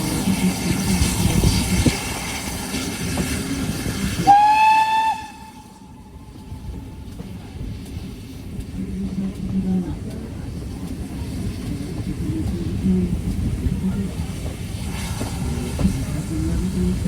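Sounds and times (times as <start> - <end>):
train rumbling: 0.0 - 17.0
voices: 5.9 - 17.0.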